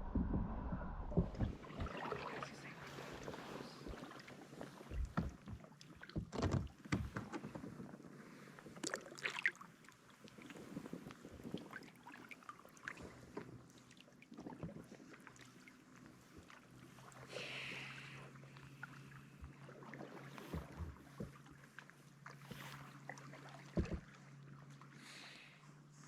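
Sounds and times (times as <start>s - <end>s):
paddle knocks: 0.0s - 4.2s, 4.8s - 7.8s, 23.6s - 24.1s
paddle blades splashing water: 1.1s - 26.0s.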